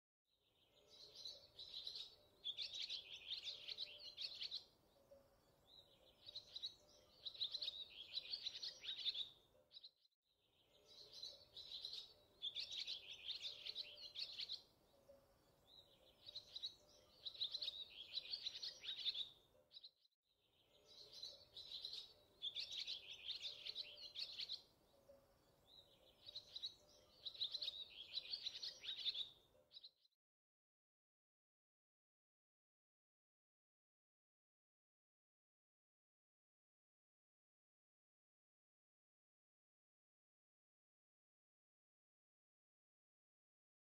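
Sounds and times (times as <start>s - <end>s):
birdsong chirping: 0.5s - 30.1s.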